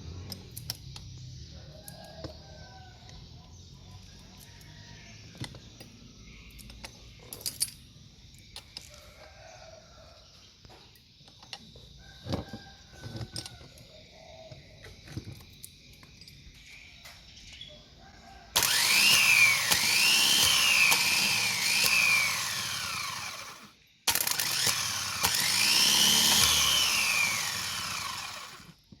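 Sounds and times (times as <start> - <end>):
starter motor whine: 18.6 - 28.8.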